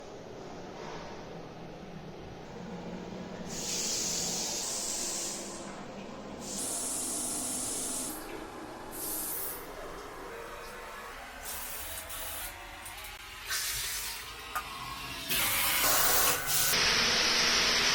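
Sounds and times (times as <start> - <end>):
hissing spray: 3.5 - 5.6.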